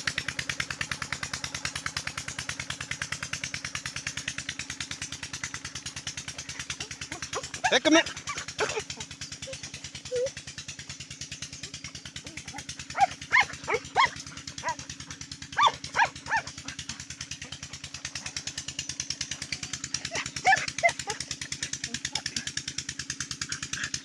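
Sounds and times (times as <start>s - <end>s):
diesel engine running: 0.0s - 24.0s
dog barking: 7.3s - 10.3s, 12.4s - 14.9s, 15.5s - 16.8s, 20.1s - 21.3s.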